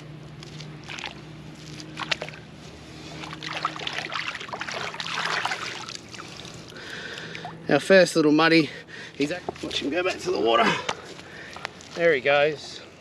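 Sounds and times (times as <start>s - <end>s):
water splashing and sloshing: 0.4s - 7.7s.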